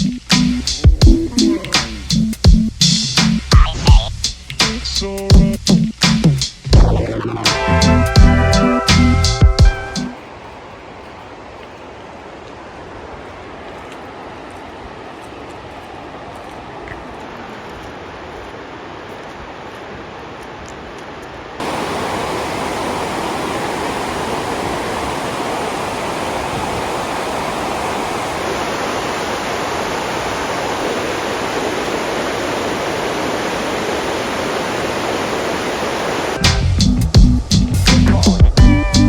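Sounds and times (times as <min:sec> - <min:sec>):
water rushing: 0:06.6 - 0:36.6.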